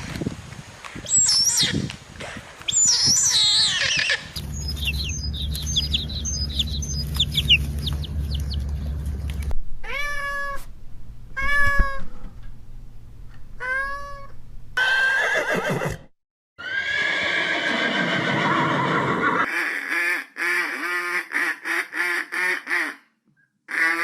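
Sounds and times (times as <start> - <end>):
low hum: 4.3 - 11.4
quick high chirps: 4.4 - 8.7
cat meowing: 9.8 - 10.7, 11.4 - 12.1, 13.6 - 14.3.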